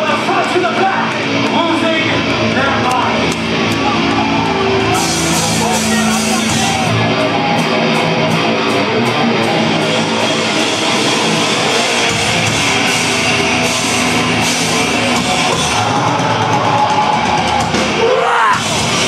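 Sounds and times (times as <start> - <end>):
heavy metal band playing: 0.0 - 19.0.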